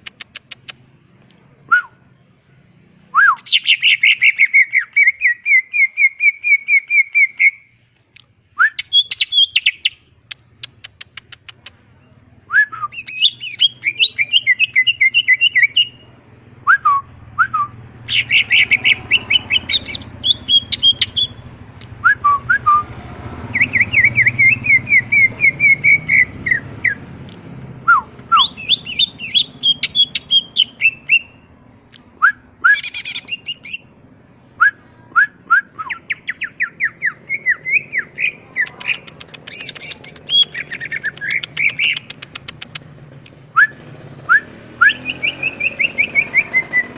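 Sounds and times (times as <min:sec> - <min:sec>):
bird singing chirps and trills: 0:03.3 - 0:07.7, 0:08.7 - 0:10.0, 0:11.9 - 0:16.1, 0:18.0 - 0:21.5, 0:23.5 - 0:27.1, 0:28.3 - 0:31.5, 0:32.7 - 0:34.0, 0:35.8 - 0:42.7, 0:44.9 - 0:46.9.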